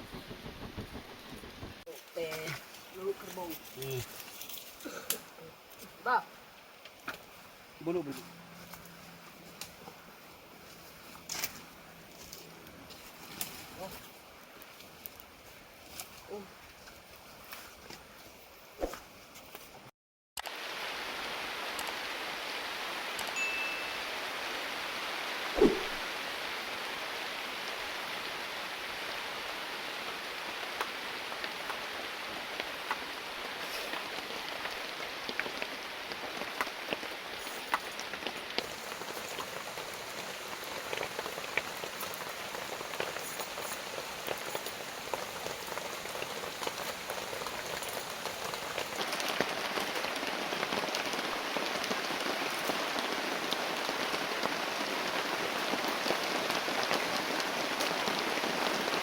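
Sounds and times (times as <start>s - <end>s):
heavy rain falling: 0.0s - 2.4s, 20.4s - 59.0s.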